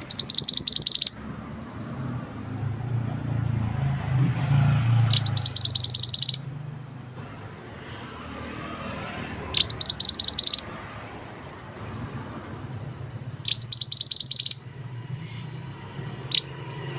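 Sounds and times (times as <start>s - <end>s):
bird chattering calls: 0.0s - 2.8s, 5.0s - 7.9s, 9.5s - 10.8s, 12.4s - 14.7s, 16.3s - 16.5s.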